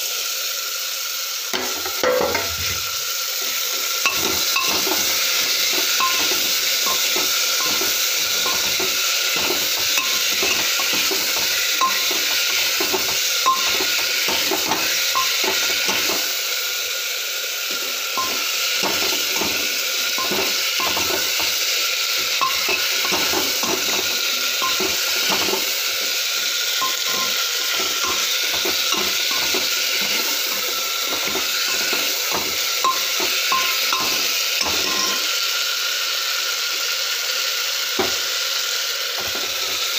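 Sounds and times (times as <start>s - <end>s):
vegetables sizzling in a pan: 0.0s - 39.9s
spatula scraping a pan: 4.1s - 16.3s, 17.7s - 35.3s.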